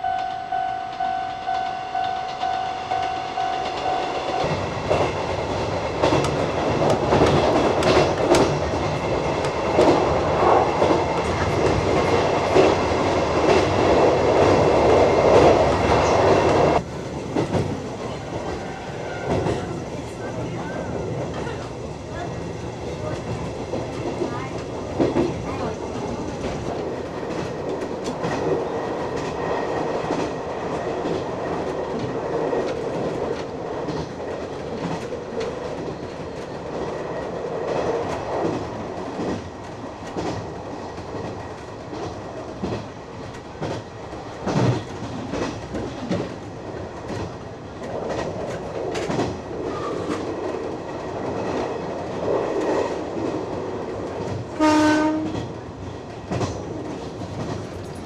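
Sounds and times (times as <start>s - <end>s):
train horn blast: 0.0s - 4.6s, 54.6s - 55.5s
electric railcar running: 0.0s - 58.0s
wheels clacking over rail joints: 3.4s - 19.8s, 23.0s - 58.0s.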